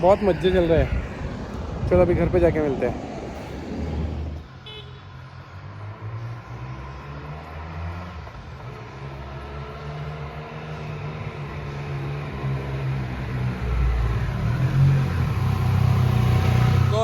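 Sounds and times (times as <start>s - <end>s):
wind noise: 0.0s - 4.5s
road noise: 0.0s - 17.0s.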